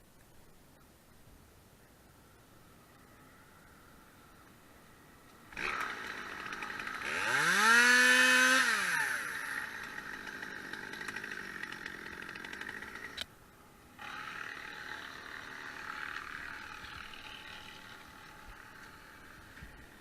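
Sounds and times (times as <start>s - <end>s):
chainsaw engine revving and idling: 5.5s - 13.3s, 14.0s - 20.0s.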